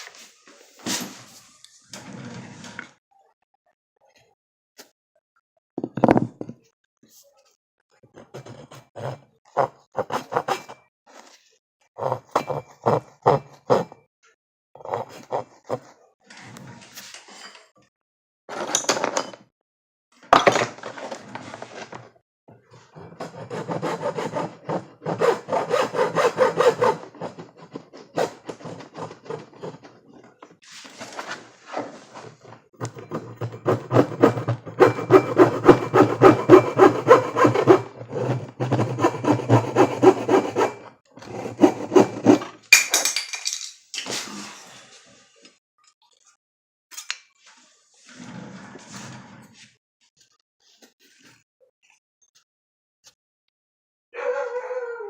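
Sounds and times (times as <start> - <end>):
hand saw strokes: 8.4 - 10.8, 23.0 - 29.9, 32.8 - 42.6.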